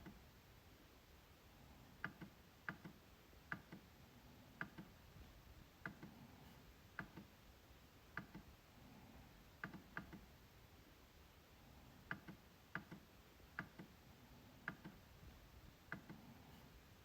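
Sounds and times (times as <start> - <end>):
trackpad clicking: 12.1 - 13.9, 14.6 - 15.0.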